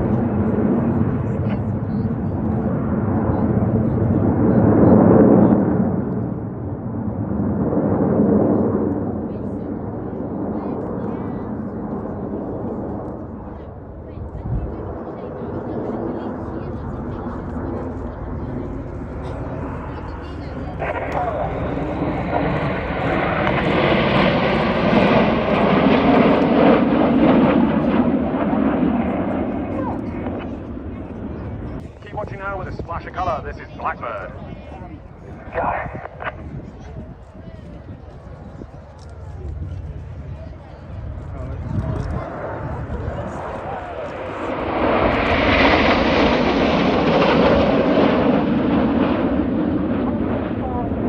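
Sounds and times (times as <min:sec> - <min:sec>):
jet aircraft flying past: 0:00.0 - 0:51.0.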